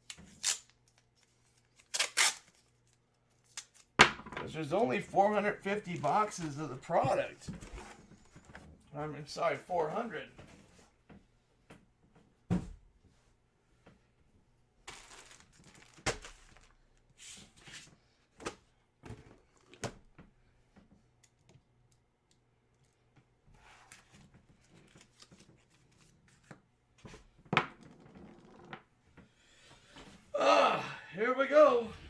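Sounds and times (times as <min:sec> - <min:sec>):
wrappers tearing and crinkling: 0:00.0 - 0:02.8, 0:14.9 - 0:17.0.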